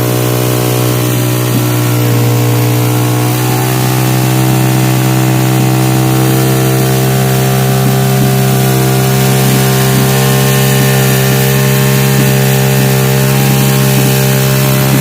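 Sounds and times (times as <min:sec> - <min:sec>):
motorcycle engine exhaust note: 0:00.0 - 0:15.0.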